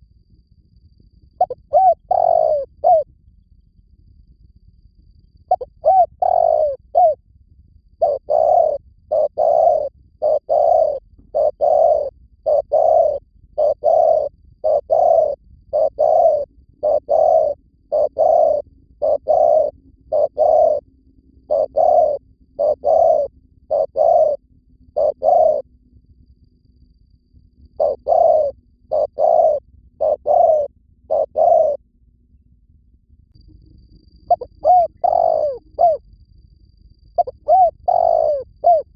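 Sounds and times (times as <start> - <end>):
dove cooing: 1.4 - 3.1, 5.5 - 7.2, 8.0 - 20.8, 21.4 - 25.7, 27.8 - 31.8, 34.3 - 36.0, 37.2 - 38.9.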